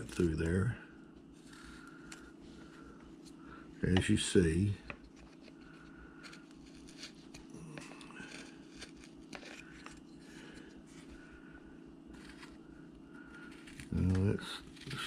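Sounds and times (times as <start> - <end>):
steady low hum: 0.0 - 15.0
knife scraping wood: 4.8 - 11.0, 12.1 - 12.6, 13.4 - 15.0.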